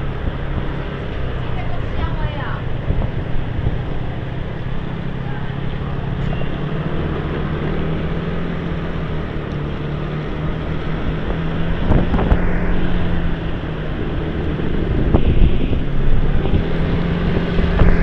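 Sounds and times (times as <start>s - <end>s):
motorbike engine running: 0.0s - 18.0s
passing traffic bursts: 0.0s - 18.0s
road noise: 0.0s - 18.0s
wind rushing over microphone: 0.0s - 18.0s.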